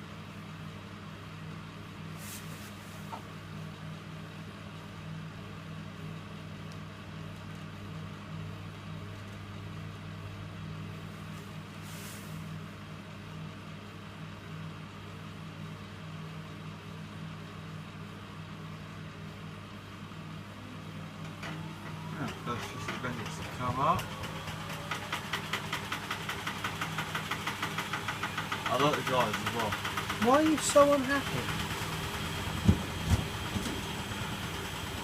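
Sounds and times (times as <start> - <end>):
washing machine humming: 0.0 - 35.0
brief hiss: 2.2 - 3.2, 11.8 - 12.5.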